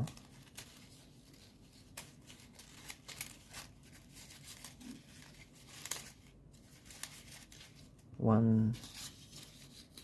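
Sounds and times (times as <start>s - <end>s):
crisp paper ticks: 0.0s - 7.9s
paper rustling: 0.0s - 8.0s, 8.8s - 10.0s.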